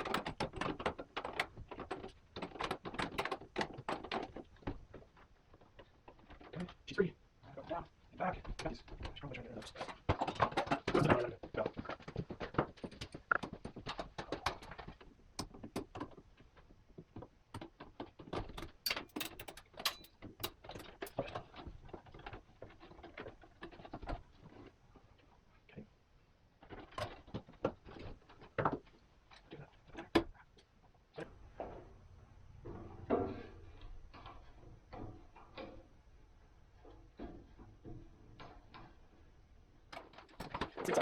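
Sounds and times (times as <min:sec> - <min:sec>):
metal hardware clicks and clatter: 0:17.5 - 0:24.6.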